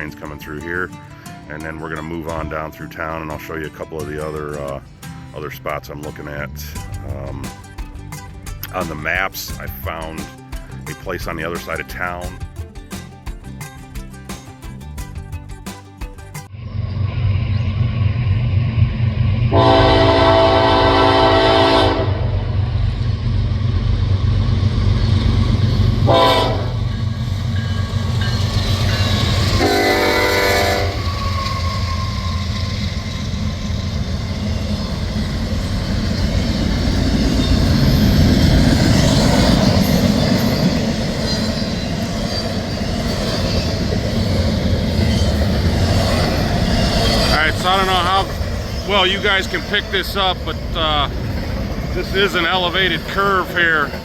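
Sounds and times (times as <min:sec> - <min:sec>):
rolling train cars: 0:00.0 - 0:10.4, 0:16.4 - 0:54.0
diesel locomotives rumbling: 0:00.0 - 0:15.5, 0:16.2 - 0:54.0
train air horn blasts: 0:19.5 - 0:22.6, 0:26.0 - 0:27.0, 0:29.0 - 0:32.9.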